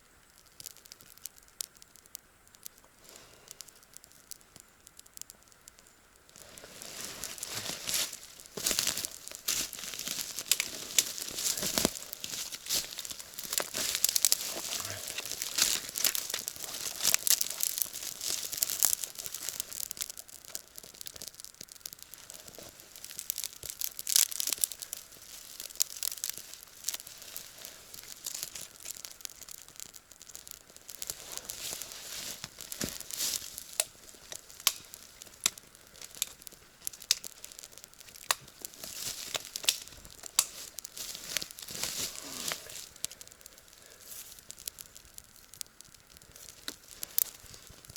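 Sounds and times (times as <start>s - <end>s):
footsteps crunching dry leaves: 6.4s - 20.0s, 30.8s - 35.4s, 36.0s - 43.0s.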